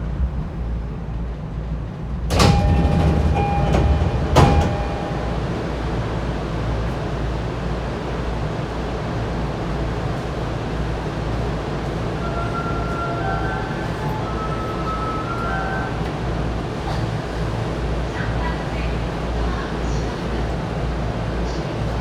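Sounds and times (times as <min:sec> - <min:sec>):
train rumbling on rails: 0:00.0 - 0:22.0
sharp knocks: 0:02.3 - 0:05.6.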